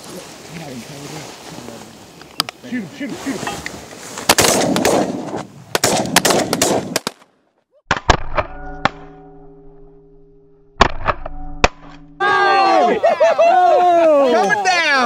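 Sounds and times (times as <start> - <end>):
shotguns firing: 4.3 - 7.2.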